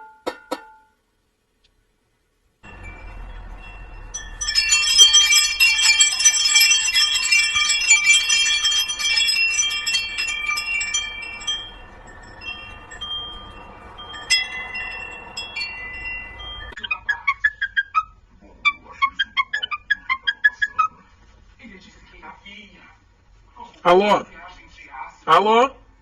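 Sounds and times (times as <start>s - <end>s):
small metal chimes jangling: 2.6s - 16.8s.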